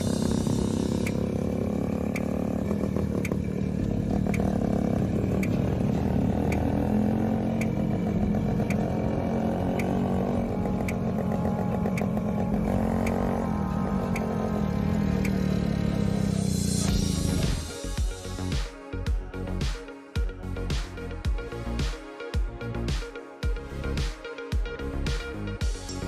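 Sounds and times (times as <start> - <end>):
motorcycle engine running: 0.0 - 18.5.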